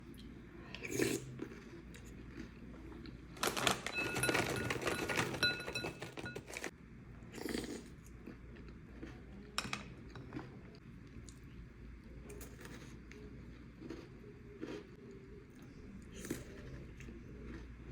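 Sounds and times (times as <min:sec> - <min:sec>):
cookies crunching: 0:00.9 - 0:06.7, 0:12.2 - 0:17.9.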